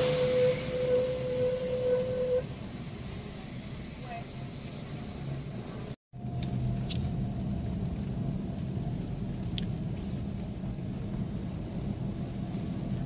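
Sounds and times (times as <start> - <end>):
car rumbling moving off: 0.0 - 4.0
brakes squeaking: 0.0 - 13.0.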